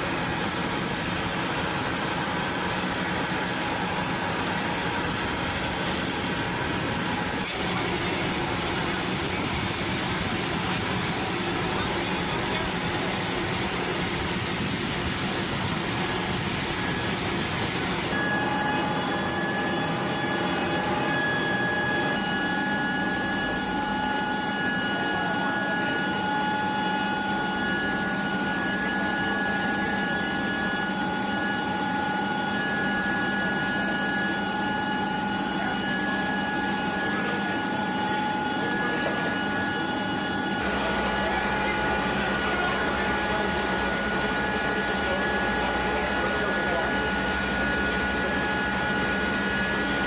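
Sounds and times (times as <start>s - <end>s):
jet engines running with whine: 0.0s - 50.0s.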